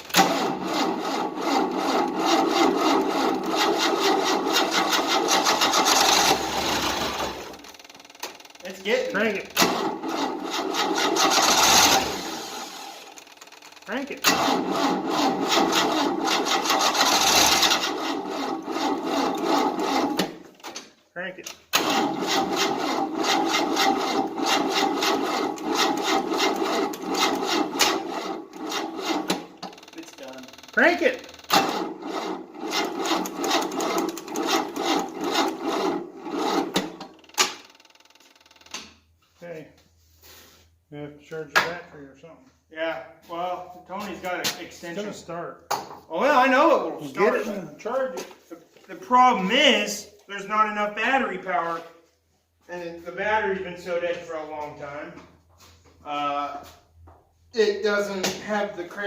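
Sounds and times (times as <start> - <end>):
engine cranking without starting: 0.0 - 39.0.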